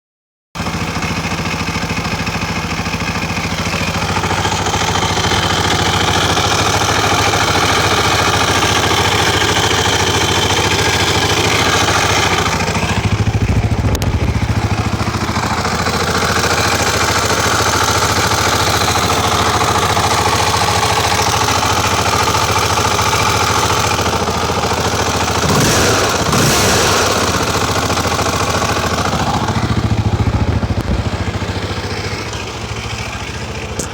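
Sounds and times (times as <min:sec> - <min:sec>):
motorcycle engine idling: 0:00.6 - 0:33.9.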